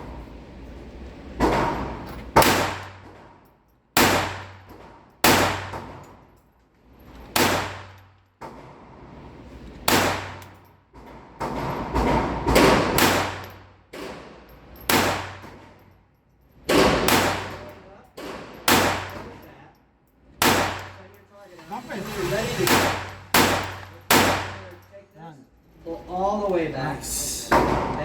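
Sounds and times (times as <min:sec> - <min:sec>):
pistol shots echoing: 0:04.0 - 0:04.6, 0:16.7 - 0:17.7, 0:18.7 - 0:19.3, 0:20.4 - 0:21.0, 0:22.7 - 0:24.8.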